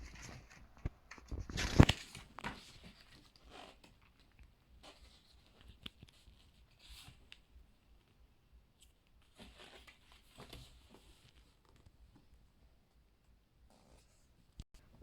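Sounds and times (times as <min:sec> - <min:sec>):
book pages turning: 0:00.0 - 0:04.0
paper rustle: 0:00.0 - 0:07.5.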